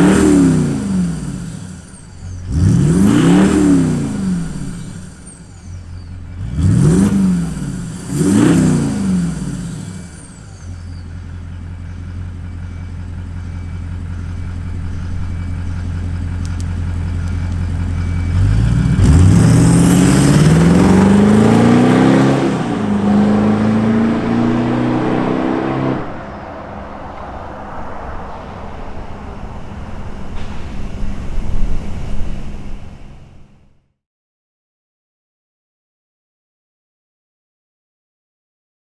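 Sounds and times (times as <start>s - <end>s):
diesel engine throttle blips: 0.0s - 26.7s
engine accelerating: 0.0s - 33.7s.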